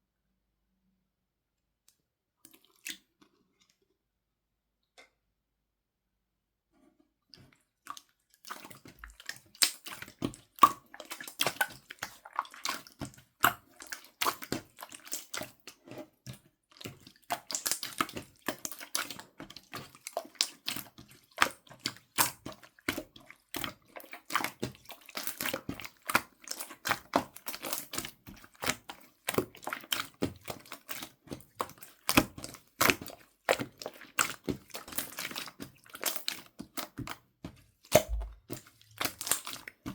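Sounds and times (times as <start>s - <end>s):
slime squelching and popping: 8.5s - 39.9s.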